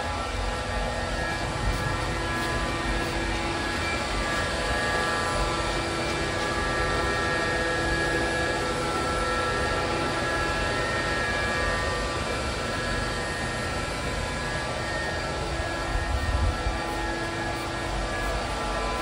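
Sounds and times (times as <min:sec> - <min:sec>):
robot vacuum cleaner whirring: 0:00.0 - 0:19.0.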